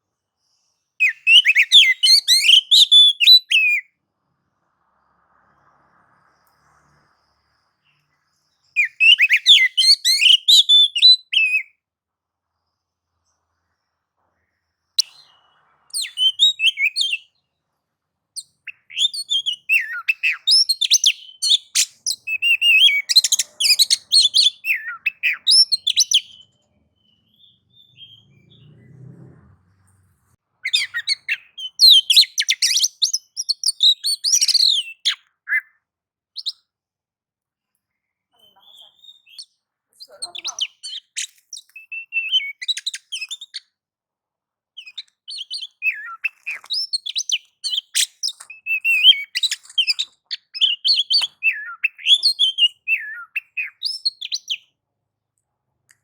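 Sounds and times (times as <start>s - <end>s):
bird singing chirps and trills: 1.0s - 3.8s, 6.4s - 11.6s, 14.9s - 17.4s, 18.4s - 28.9s, 30.7s - 35.7s, 38.4s - 43.6s, 44.8s - 54.7s.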